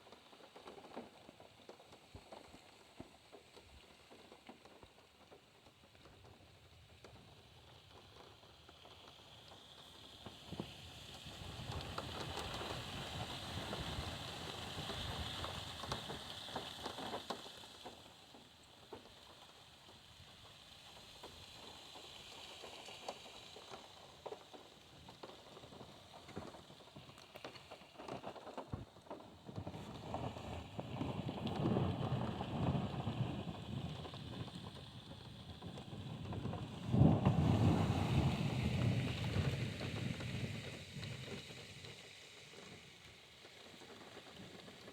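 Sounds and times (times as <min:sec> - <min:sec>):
heavy rain on car roof: 0:10.5 - 0:21.8, 0:22.6 - 0:44.9.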